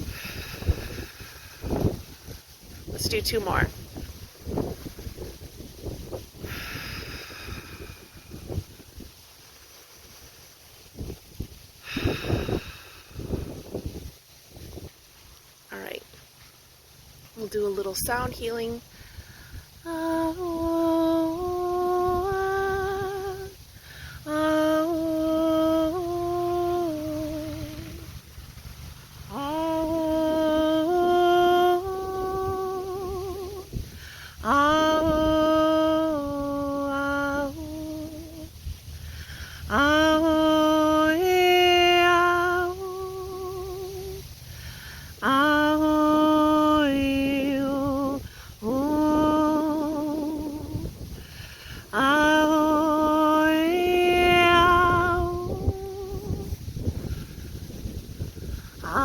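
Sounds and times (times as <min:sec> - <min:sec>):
breaths: 0:00.0 - 0:02.7, 0:06.2 - 0:15.6, 0:18.8 - 0:19.9, 0:23.6 - 0:24.3, 0:33.7 - 0:34.4, 0:38.8 - 0:39.7, 0:44.3 - 0:45.2, 0:48.2 - 0:48.6, 0:51.0 - 0:52.0, 0:56.7 - 0:58.8
woman toning long held notes: 0:19.8 - 0:28.3, 0:29.2 - 0:38.5, 0:39.1 - 0:44.6, 0:45.2 - 0:59.0.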